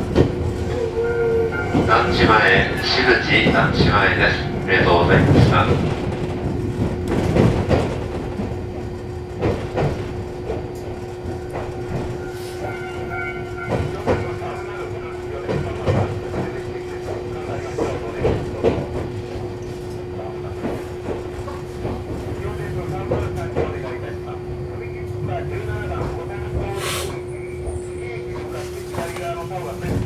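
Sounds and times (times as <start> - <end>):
train wheels knocking over track: 4.9 - 10.7.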